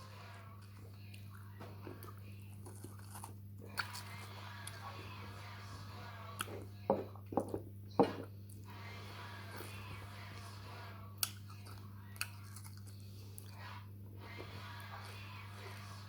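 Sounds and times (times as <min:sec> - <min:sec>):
mouth smacking and chewing: 0:11.2 - 0:13.6.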